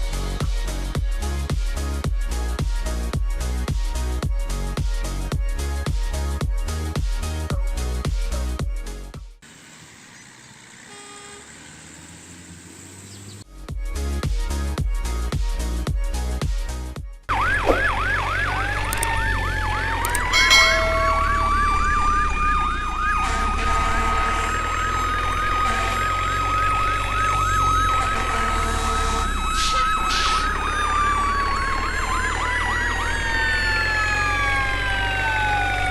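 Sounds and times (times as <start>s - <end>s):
sirens wailing: 17.3s - 35.9s.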